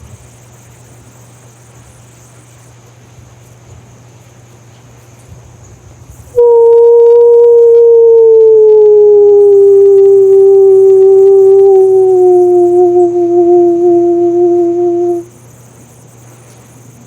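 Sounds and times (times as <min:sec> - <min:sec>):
held tone sinking in pitch: 0:06.4 - 0:15.3.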